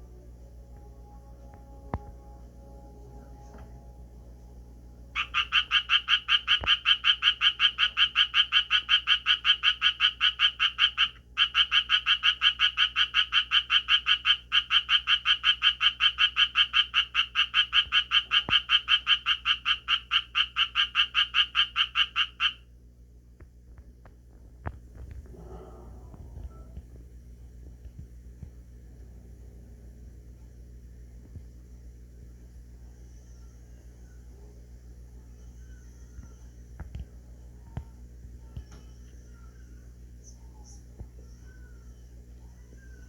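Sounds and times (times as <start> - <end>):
tree frog rasping croaks: 5.2 - 22.6.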